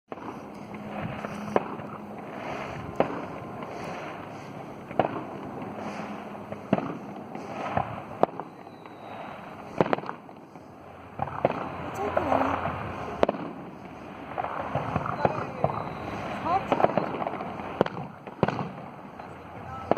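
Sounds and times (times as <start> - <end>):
fireworks bangs: 0.1 - 19.9
noisy background: 0.1 - 19.9.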